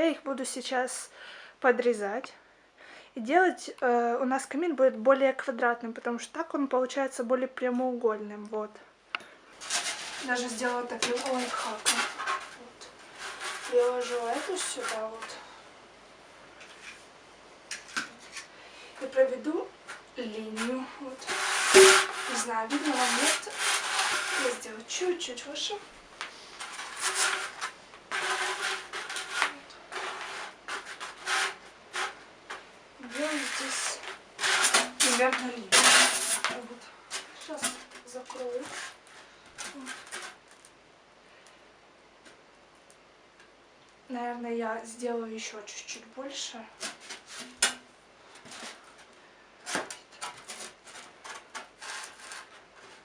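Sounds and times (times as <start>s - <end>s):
rubbing and scraping foam: 9.6s - 15.4s, 19.9s - 25.2s, 26.3s - 40.5s, 49.7s - 53.0s.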